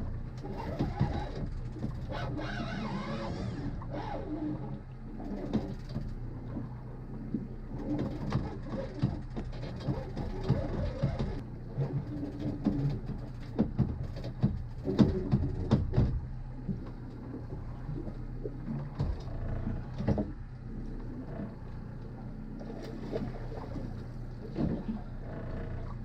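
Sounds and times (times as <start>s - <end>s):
boat motor humming: 0.0s - 26.0s
knocks and clatter of gear: 0.3s - 2.2s, 5.2s - 6.7s, 7.3s - 17.2s, 18.1s - 22.1s.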